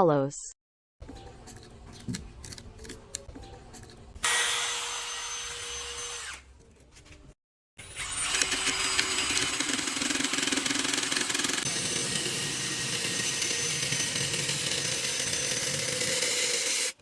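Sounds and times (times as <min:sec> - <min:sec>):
power tool whining on wood: 0:04.2 - 0:06.4, 0:07.8 - 0:17.0.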